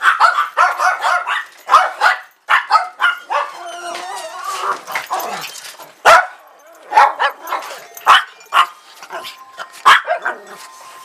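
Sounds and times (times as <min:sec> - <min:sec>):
dogs barking and whining: 0:00.0 - 0:11.0.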